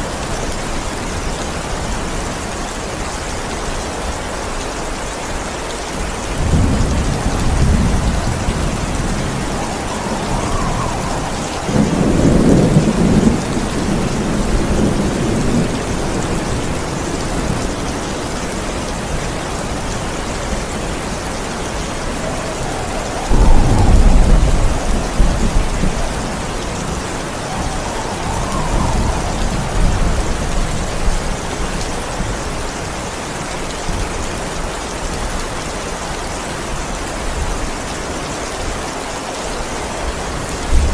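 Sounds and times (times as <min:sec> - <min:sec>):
heavy rain: 0:00.0 - 0:40.9
thunder rolling: 0:06.4 - 0:32.8, 0:40.6 - 0:40.9.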